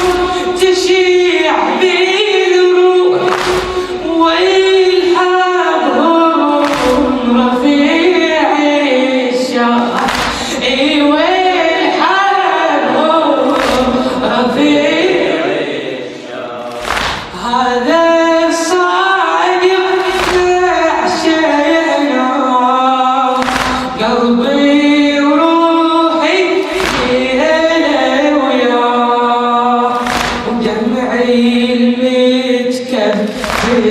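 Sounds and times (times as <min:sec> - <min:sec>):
group of voices chanting: 0:12.8 - 0:17.4.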